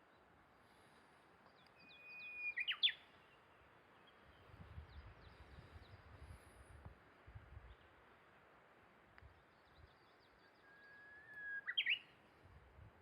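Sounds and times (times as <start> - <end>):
faint bird calls: 1.6 - 3.5, 10.3 - 12.2
bird singing whistled phrase: 1.8 - 3.0, 10.6 - 12.1.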